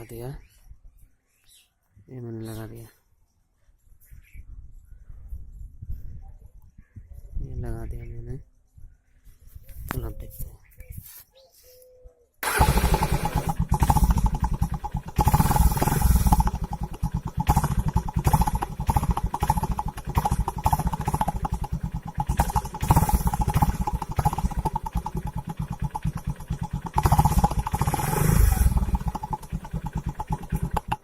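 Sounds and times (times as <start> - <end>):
motorcycle engine revving: 12.4 - 31.0.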